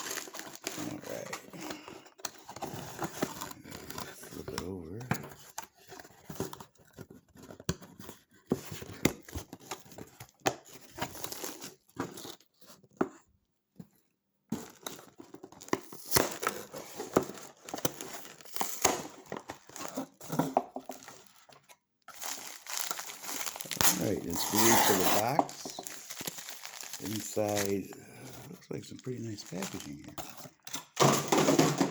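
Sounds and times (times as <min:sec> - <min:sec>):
paper packing crinkling: 0:00.0 - 0:04.9, 0:14.6 - 0:31.9
cardboard box tearing: 0:22.1 - 0:27.9.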